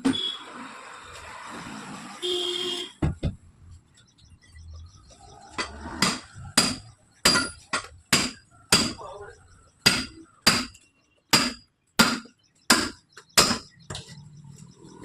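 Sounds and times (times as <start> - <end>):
hammer striking metal: 5.6 - 9.0, 9.8 - 13.8.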